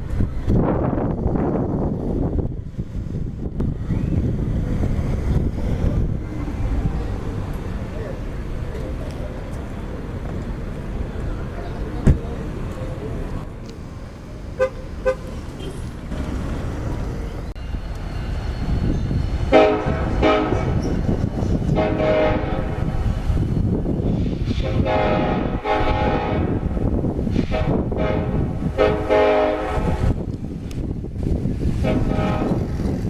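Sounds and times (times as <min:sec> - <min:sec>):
train rumble: 0:00.0 - 0:33.0
locomotive air horn blasts: 0:13.8 - 0:16.0, 0:19.5 - 0:20.9, 0:21.7 - 0:22.9, 0:24.6 - 0:26.7, 0:27.4 - 0:30.2, 0:31.8 - 0:32.8.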